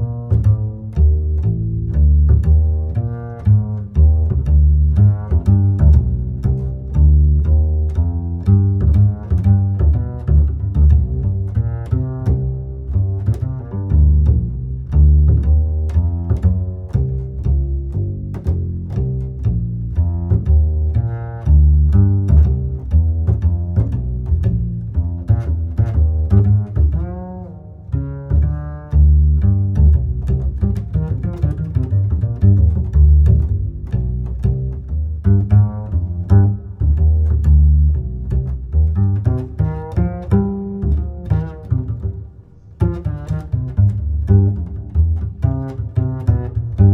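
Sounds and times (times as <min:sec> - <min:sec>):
bass and strings music: 0:00.0 - 0:46.9.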